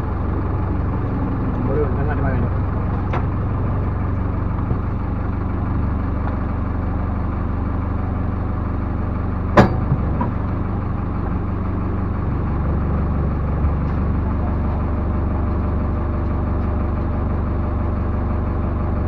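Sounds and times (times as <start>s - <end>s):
diesel engine running: 0.0s - 19.0s
sharp knock: 9.6s - 10.2s.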